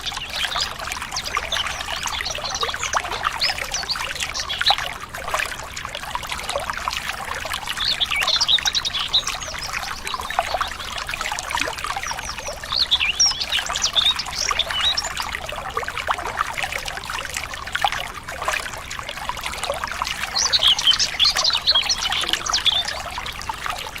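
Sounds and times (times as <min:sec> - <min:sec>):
water trickling and splashing: 0:00.0 - 0:24.0
birds twittering: 0:07.7 - 0:11.0, 0:12.0 - 0:15.2, 0:20.2 - 0:23.4.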